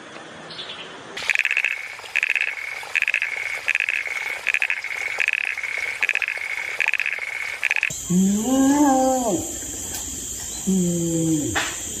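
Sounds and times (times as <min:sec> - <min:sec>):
tree frog calling: 0:01.2 - 0:09.8.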